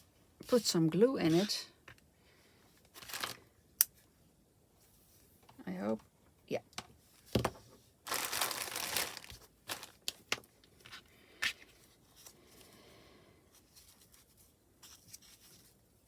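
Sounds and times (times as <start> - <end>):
handling crafting materials: 2.8 - 3.4, 7.3 - 12.7.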